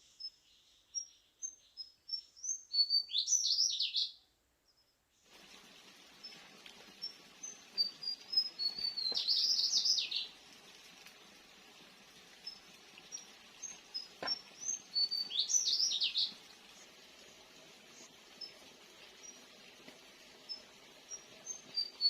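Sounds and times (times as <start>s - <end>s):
songbird singing: 0.0s - 5.1s, 6.2s - 10.4s, 12.3s - 22.0s.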